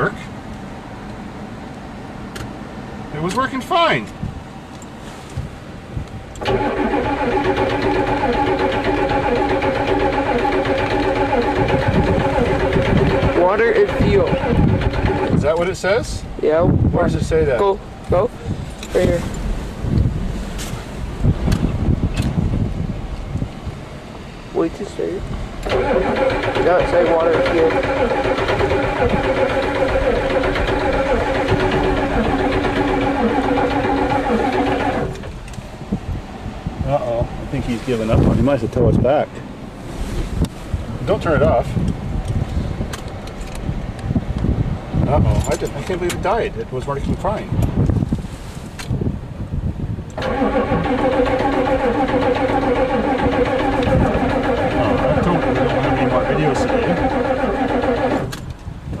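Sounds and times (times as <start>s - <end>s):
diesel truck engine starting: 6.2s - 22.3s, 24.5s - 35.8s, 50.1s - 59.0s.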